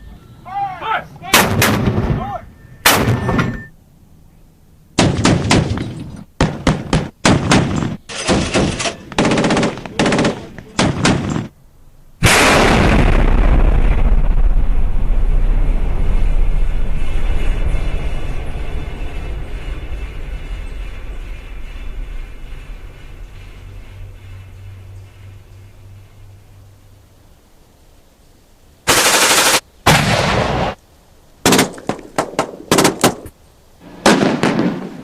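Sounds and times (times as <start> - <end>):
single gunshots: 1.3 - 2.2, 2.8 - 3.5, 12.2 - 13.9, 28.9 - 30.8, 31.4 - 33.3, 34.0 - 35.0
loud blast: 1.3 - 3.7, 12.2 - 23.1, 28.9 - 30.8
heavy rumble: 4.9 - 30.8
automatic gunfire: 6.4 - 11.5, 28.9 - 30.4.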